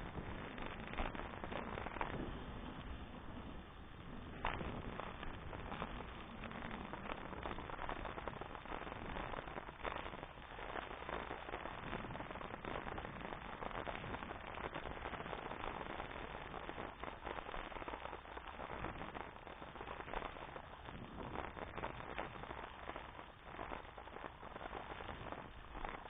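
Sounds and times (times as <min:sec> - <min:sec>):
bicycle crackling and rattling: 0:00.0 - 0:07.0
wind buffeting microphone: 0:00.0 - 0:17.6, 0:18.6 - 0:26.0.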